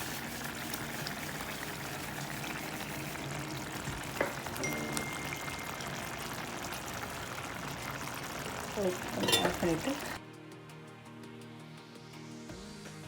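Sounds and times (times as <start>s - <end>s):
gravy simmering in a pan: 0.0s - 10.2s.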